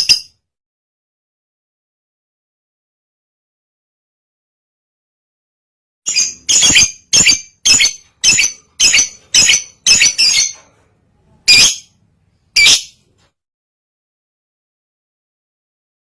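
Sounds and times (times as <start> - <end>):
lovebird chirping: 6.1 - 10.6, 11.5 - 12.0, 12.6 - 13.0.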